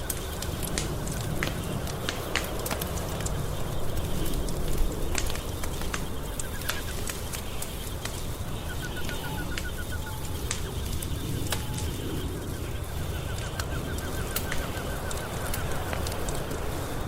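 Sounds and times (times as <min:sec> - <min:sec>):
wood fire crackling: 0:00.0 - 0:17.0
faint high chirping trill: 0:07.6 - 0:15.4.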